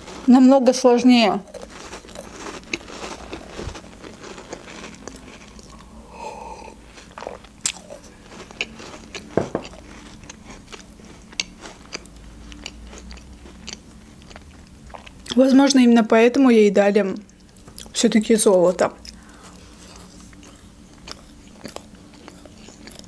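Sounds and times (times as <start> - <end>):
person chewing food: 0.0 - 0.3, 1.4 - 15.4, 17.3 - 17.9, 19.0 - 23.0.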